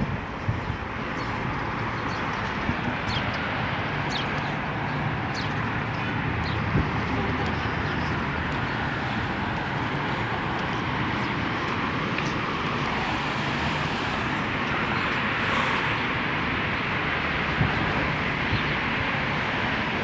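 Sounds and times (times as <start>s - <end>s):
outdoor rumble and hiss: 2.5s - 18.4s.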